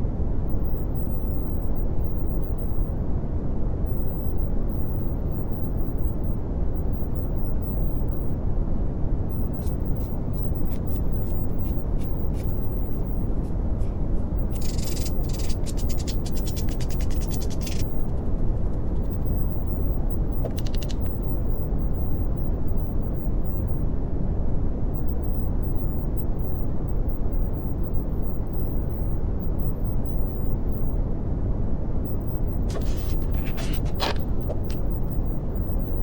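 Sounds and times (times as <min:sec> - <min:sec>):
faint high clicks: 0:20.4 - 0:21.2.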